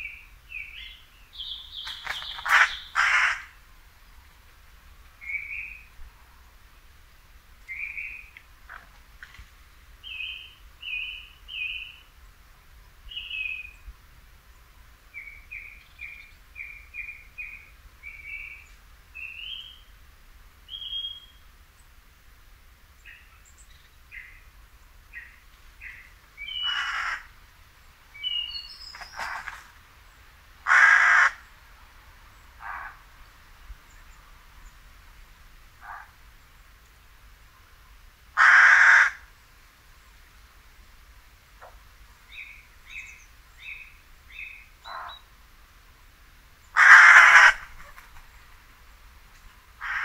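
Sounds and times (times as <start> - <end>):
crow cawing: 2.4 - 3.6, 26.6 - 27.3, 30.6 - 31.4, 38.4 - 39.2, 46.8 - 47.7, 49.8 - 50.0.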